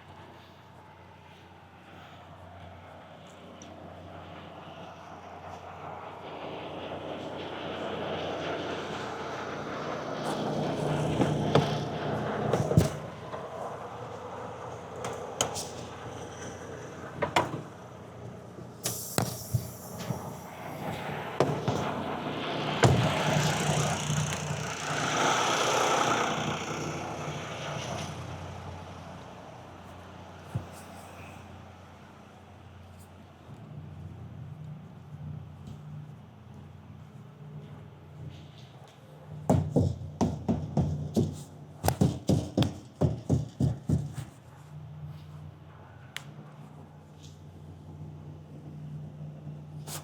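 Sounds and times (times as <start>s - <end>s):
vehicle passing by: 3.8s - 18.8s, 20.0s - 32.8s
sharp knocks: 39.5s - 44.3s.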